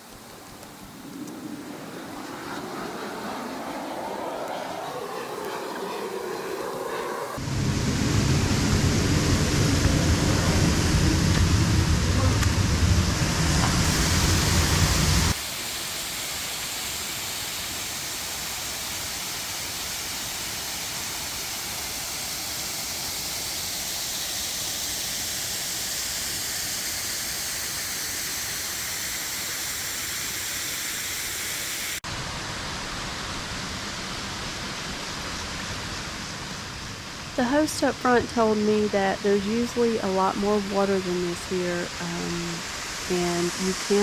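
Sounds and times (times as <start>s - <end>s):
waterfall rushing: 36.6s - 44.0s.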